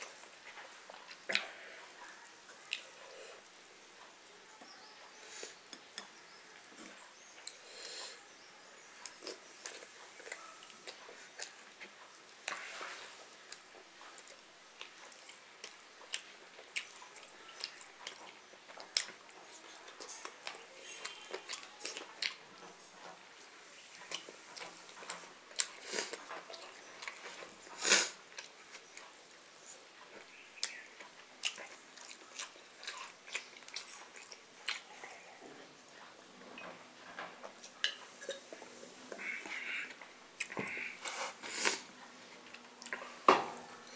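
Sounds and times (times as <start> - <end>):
person chewing and smacking: 2.6 - 3.0, 9.0 - 22.7, 23.4 - 35.0, 37.5 - 41.8, 42.4 - 43.2.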